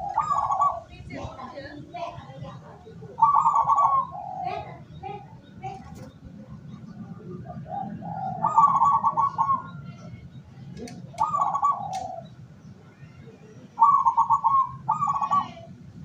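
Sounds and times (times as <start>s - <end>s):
doves cooing: 0.0s - 16.0s
small birds chirping: 0.0s - 16.0s
sharp clicks: 11.9s - 12.1s.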